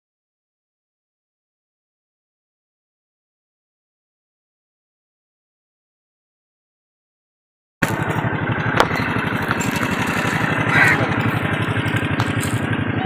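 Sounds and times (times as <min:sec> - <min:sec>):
small engine running: 0:07.8 - 0:13.0
crow cawing: 0:10.5 - 0:11.2.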